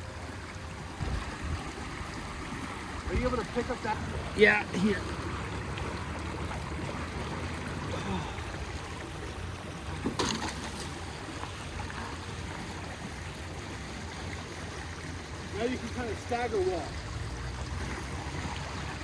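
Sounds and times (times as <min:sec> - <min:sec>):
river water rushing: 0:00.0 - 0:19.0
sharp knock or splash: 0:10.0 - 0:11.0.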